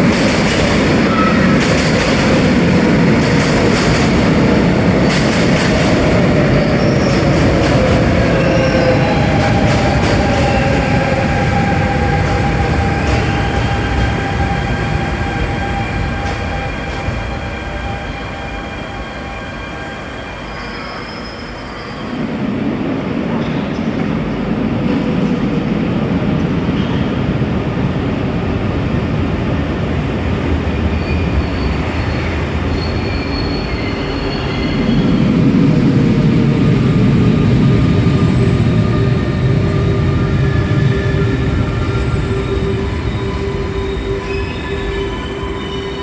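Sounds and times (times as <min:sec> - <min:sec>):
train traction whine: 0:00.0 - 0:22.4, 0:28.0 - 0:46.0
train rumbling: 0:00.0 - 0:46.0
wheel and brake squeals: 0:31.0 - 0:35.2.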